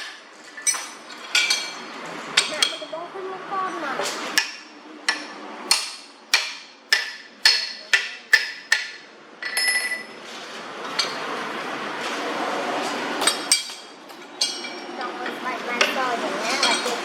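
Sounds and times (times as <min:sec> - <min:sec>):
hammer striking steel: 0:04.4 - 0:10.1
ringing metallic clang: 0:09.4 - 0:10.2.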